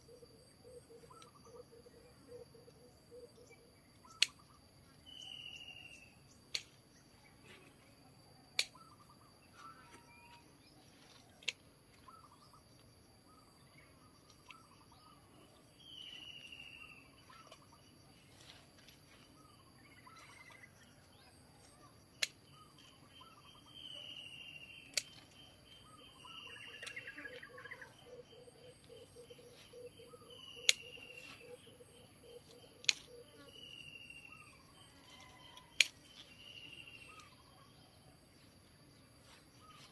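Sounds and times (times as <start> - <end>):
sharp clicks or snaps: 8.6 - 8.8, 24.9 - 25.4, 32.8 - 33.1
birds calling: 22.2 - 37.8.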